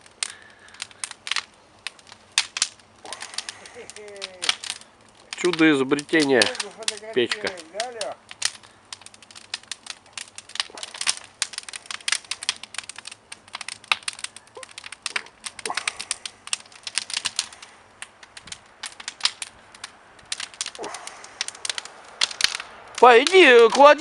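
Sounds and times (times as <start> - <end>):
firewood crackling and popping: 0.0 - 24.0.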